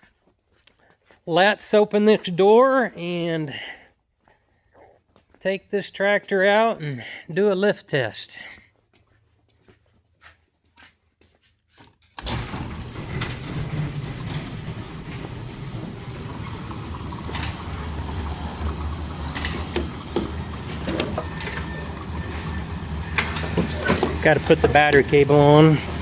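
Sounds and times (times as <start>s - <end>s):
shop door rumbling and rattling: 12.2s - 26.0s.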